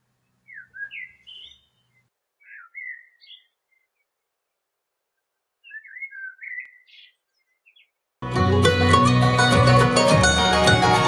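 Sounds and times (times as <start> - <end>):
songbird chirping: 0.0 - 8.2.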